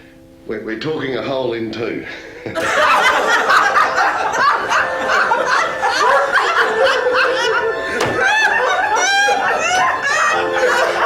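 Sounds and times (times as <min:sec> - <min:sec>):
audience laughing: 0:02.4 - 0:11.0.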